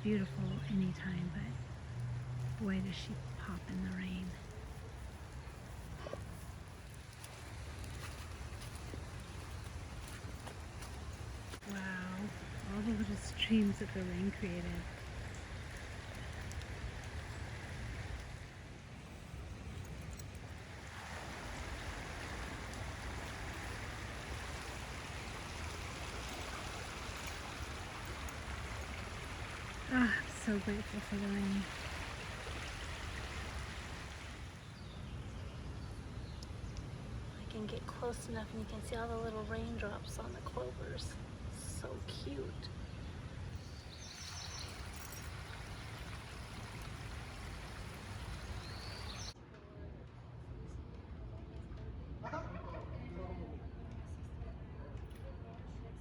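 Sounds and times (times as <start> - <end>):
runoff water trickling: 0.0 - 35.1, 41.4 - 49.4
steady rain: 1.7 - 34.8, 43.4 - 49.4
rainwater running: 2.4 - 34.7, 43.5 - 49.4.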